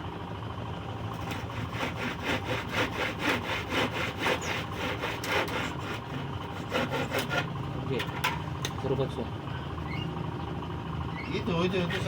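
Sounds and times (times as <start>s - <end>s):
hand saw cutting wood: 1.1s - 7.6s.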